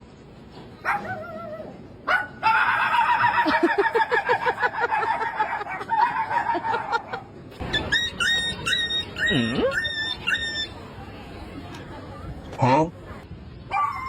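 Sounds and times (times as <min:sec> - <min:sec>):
dog-like yipping and whining: 0:00.8 - 0:03.6, 0:05.8 - 0:10.8, 0:13.7 - 0:14.0.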